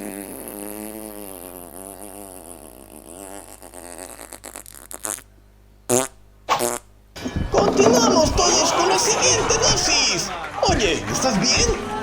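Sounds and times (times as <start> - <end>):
comedic fart sound effect: 0.0 - 5.3, 5.9 - 8.6.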